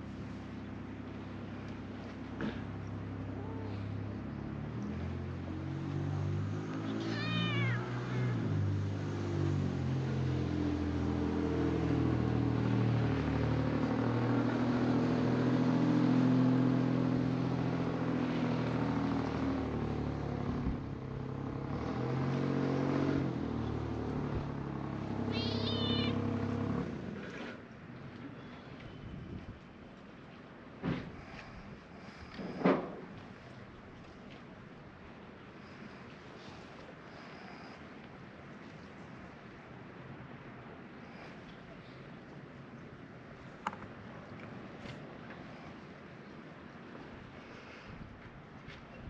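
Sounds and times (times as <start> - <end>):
cat meowing: 7.0 - 8.4, 25.3 - 26.2.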